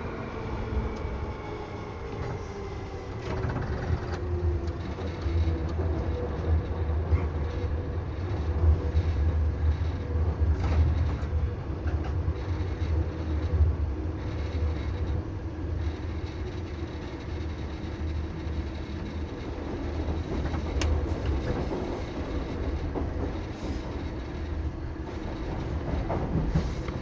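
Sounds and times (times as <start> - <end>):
train motor whine: 0.0 - 6.9
heavy low train rumble: 0.0 - 27.0
rail clicks: 0.0 - 27.0.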